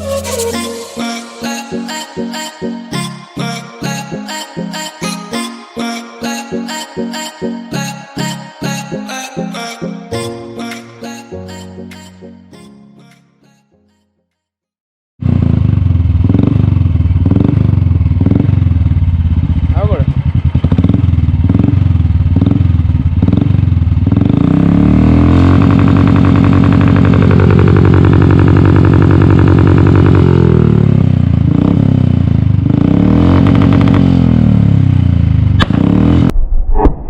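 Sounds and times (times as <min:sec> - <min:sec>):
motorcycle engine revving: 0:15.2 - 0:36.3.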